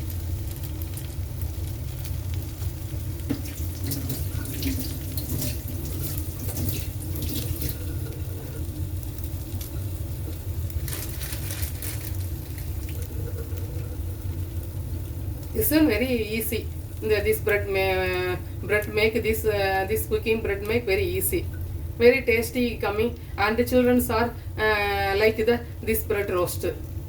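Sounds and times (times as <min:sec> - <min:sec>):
bread sizzling in a pan: 0:00.0 - 0:20.1.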